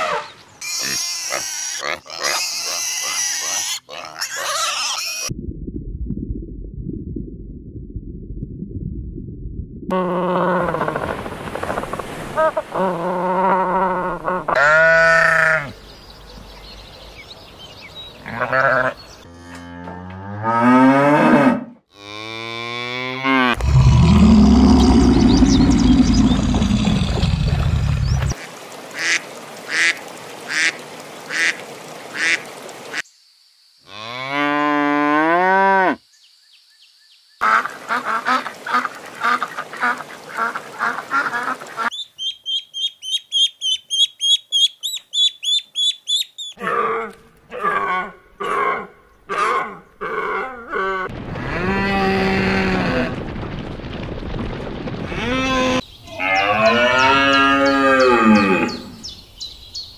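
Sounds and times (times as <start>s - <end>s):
cows mooing: 55.2s - 59.0s.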